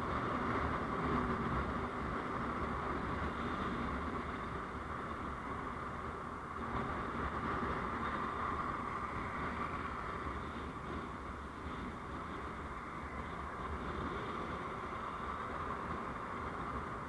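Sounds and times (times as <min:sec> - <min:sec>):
vehicle road and engine noise: 0:00.0 - 0:17.0.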